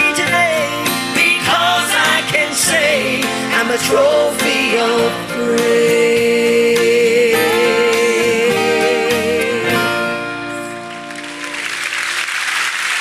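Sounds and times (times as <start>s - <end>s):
person singing with vibrato: 0.0s - 10.7s
audience applause: 10.8s - 13.0s.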